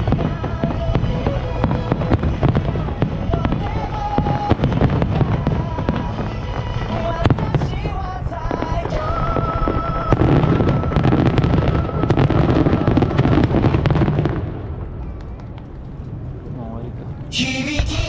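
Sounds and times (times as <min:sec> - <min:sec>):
fireworks bangs: 0:00.0 - 0:16.2, 0:17.2 - 0:18.0
fireworks crackling: 0:00.0 - 0:16.4, 0:17.2 - 0:18.0.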